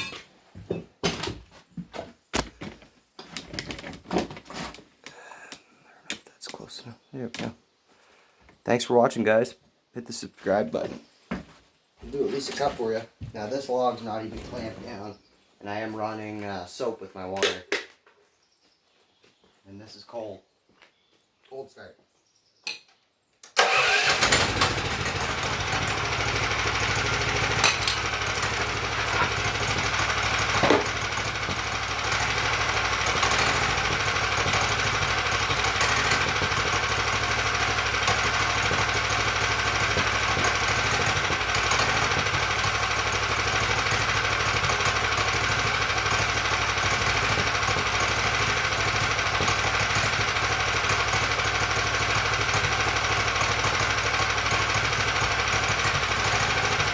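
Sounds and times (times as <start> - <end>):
sawmill gas engine running: 23.6 - 56.9
engine knocks: 23.7 - 56.9.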